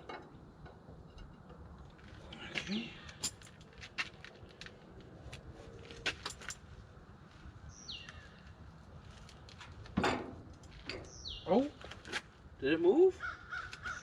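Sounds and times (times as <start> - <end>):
bird calling: 13.2 - 14.0.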